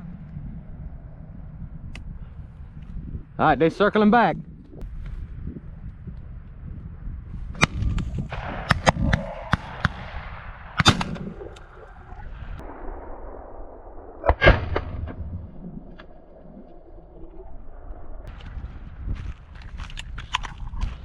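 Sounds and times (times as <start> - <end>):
shotgun shots: 7.6 - 11.5.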